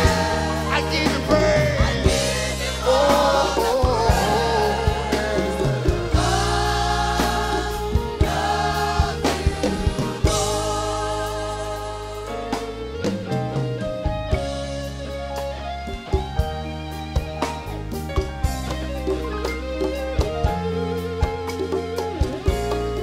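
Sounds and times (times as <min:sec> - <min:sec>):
singers singing: 0:00.0 - 0:12.9
gospel band playing: 0:00.0 - 0:23.0.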